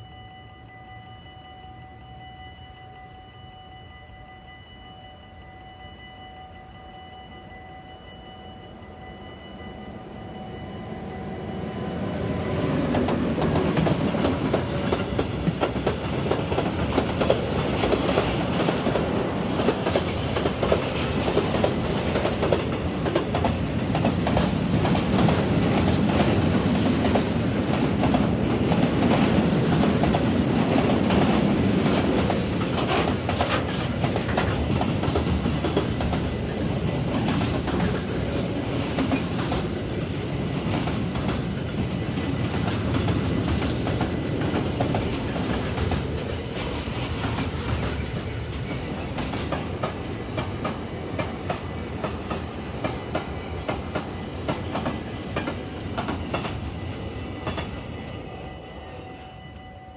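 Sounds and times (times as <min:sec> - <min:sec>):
steel wheels rumbling on rail: 0:09.9 - 0:59.2
wheels clacking over rail joints: 0:12.8 - 0:56.7.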